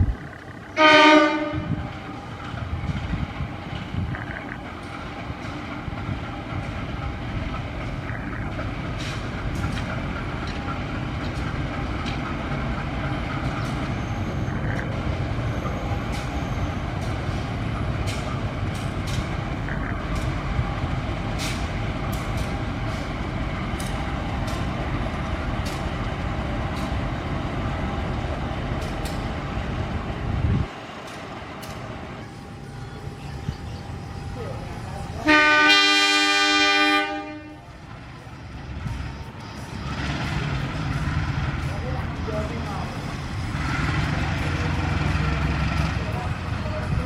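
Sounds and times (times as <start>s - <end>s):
train rumbling: 0.0s - 47.0s
wheels clicking over rail joints: 2.2s - 29.5s, 31.0s - 32.0s
faint wheel squeal: 13.5s - 17.0s.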